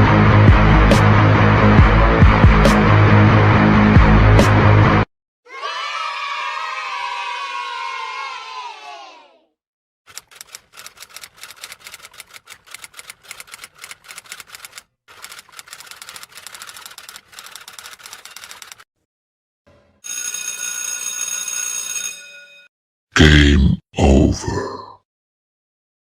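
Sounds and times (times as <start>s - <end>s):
typewriter keys clattering: 10.1s - 18.8s
typewriter bell ringing: 17.5s - 18.8s, 20.0s - 22.7s.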